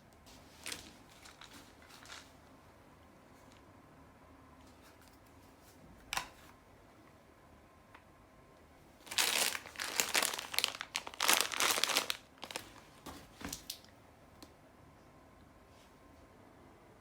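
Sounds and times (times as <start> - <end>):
crinkling and rustling: 0.2 - 2.4, 9.0 - 13.9.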